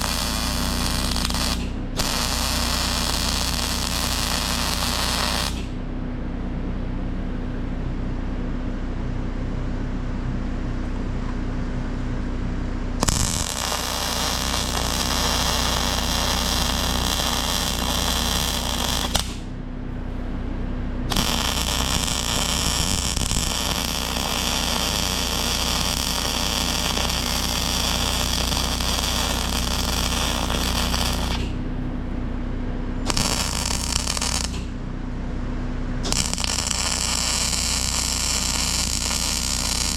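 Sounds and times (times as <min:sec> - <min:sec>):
welding arc crackling hiss: 0:00.0 - 0:05.8, 0:13.0 - 0:19.5, 0:21.1 - 0:31.6, 0:33.1 - 0:34.7, 0:36.1 - 0:39.9
steady electrical hum: 0:00.0 - 0:39.9.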